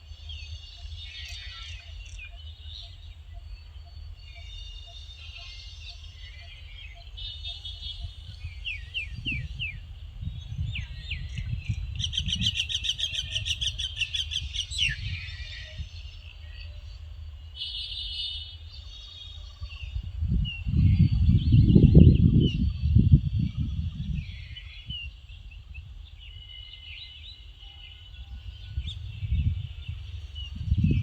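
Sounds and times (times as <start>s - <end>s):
bird trill: 0.0s - 9.8s
birds chirping and singing: 0.0s - 31.0s.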